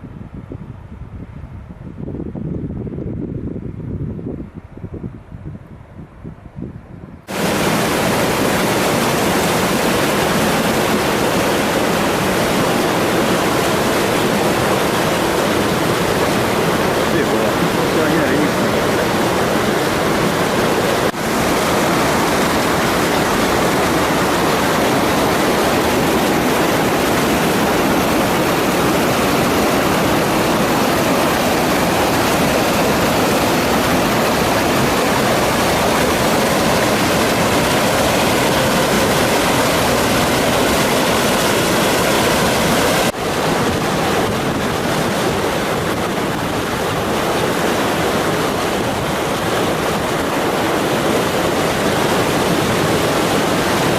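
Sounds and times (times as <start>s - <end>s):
waterfall roaring: 7.3s - 53.9s.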